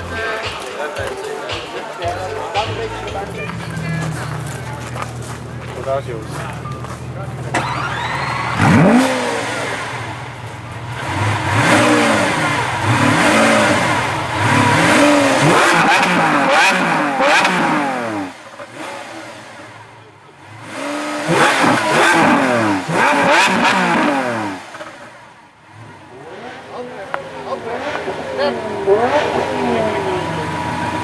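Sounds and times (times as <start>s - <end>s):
car engine revving: 0.0s - 1.4s, 2.1s - 31.0s.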